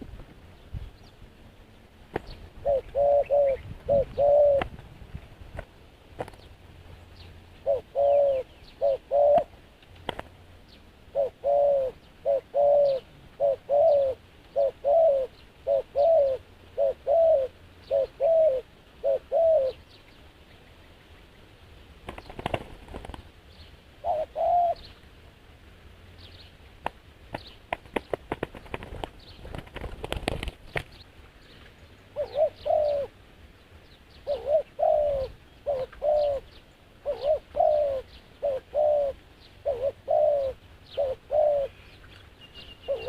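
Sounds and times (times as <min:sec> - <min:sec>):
dove cooing: 0:02.6 - 0:04.8, 0:07.6 - 0:09.6, 0:11.1 - 0:19.9, 0:24.0 - 0:24.9, 0:32.1 - 0:33.2, 0:34.2 - 0:41.9, 0:42.8 - 0:43.0.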